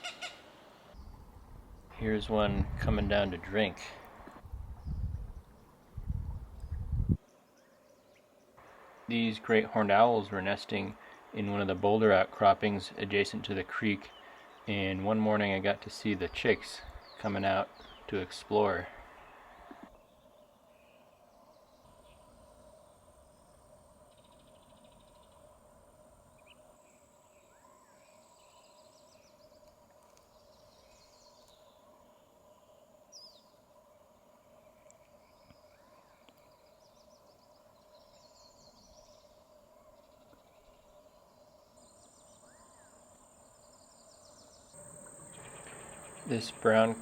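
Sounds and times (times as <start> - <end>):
small birds calling: 6.6 - 22.4, 34.6 - 47.0
high insect trill: 41.6 - 47.0.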